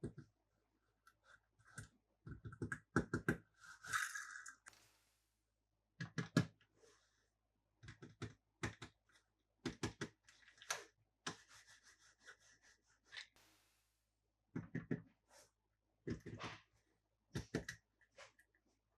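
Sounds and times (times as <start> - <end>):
plastic toys clicking and tapping: 1.7 - 4.8, 9.6 - 10.8, 17.3 - 17.8.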